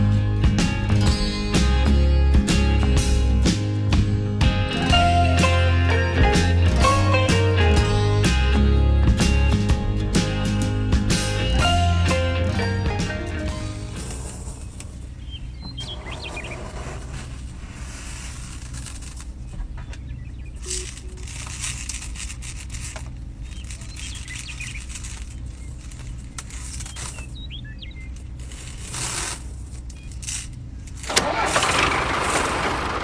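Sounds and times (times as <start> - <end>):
loud rough noise: 0.0 - 15.1, 31.1 - 33.0
vehicle engine rumbling: 0.0 - 33.0
birds chirping: 4.7 - 17.1, 19.4 - 21.3, 23.4 - 28.2.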